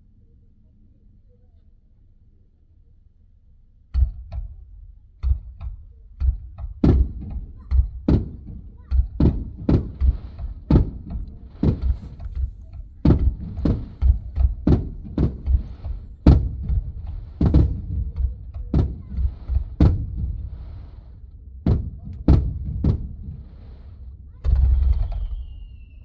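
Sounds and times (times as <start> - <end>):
muffled firework booms: 3.9 - 26.0
faint firework crackle: 4.0 - 26.0.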